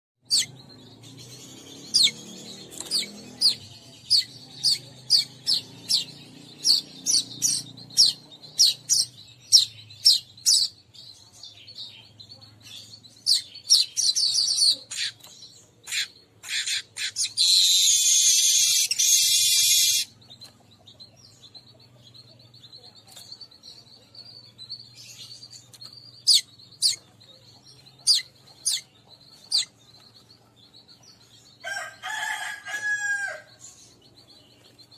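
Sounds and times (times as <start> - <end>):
weaverbird calls: 0.3 - 10.7, 15.9 - 20.2, 27.8 - 30.1.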